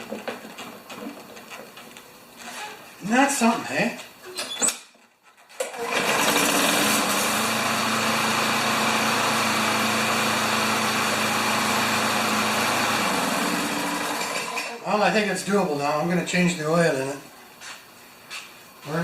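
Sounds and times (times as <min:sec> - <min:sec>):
lawn mower engine running: 0:05.6 - 0:14.8.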